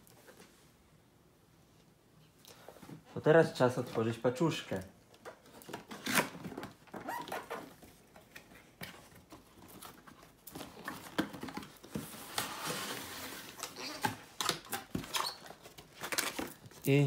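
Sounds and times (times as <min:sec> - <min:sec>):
cardboard scraping and rustling: 0:05.4 - 0:16.7
cardboard packaging being opened: 0:05.4 - 0:17.0.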